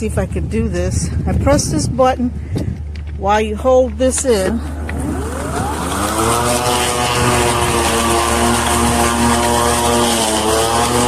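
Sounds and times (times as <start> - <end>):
electric lawn mower whine: 3.9 - 11.0.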